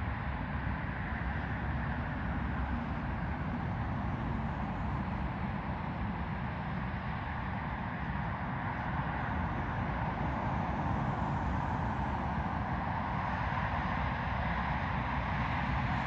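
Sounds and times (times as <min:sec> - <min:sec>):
jet engines running: 0:00.1 - 0:16.0.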